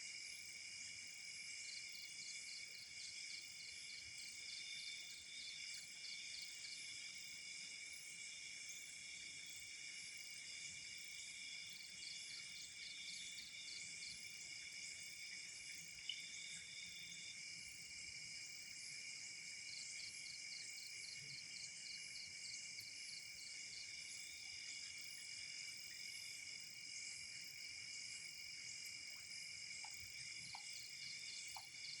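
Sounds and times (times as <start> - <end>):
cricket chirping in pulses: 1.5 - 32.0
crickets trilling: 11.4 - 32.0.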